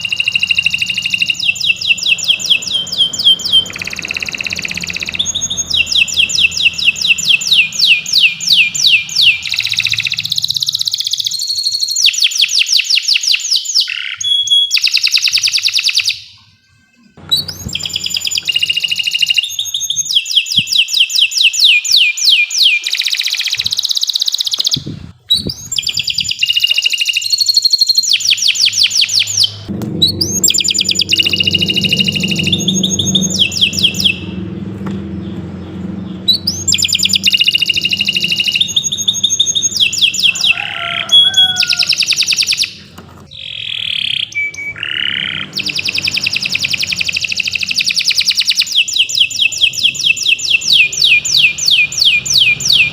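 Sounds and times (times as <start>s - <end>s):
canary singing trills: 0.0s - 52.9s
low hum: 29.2s - 40.3s.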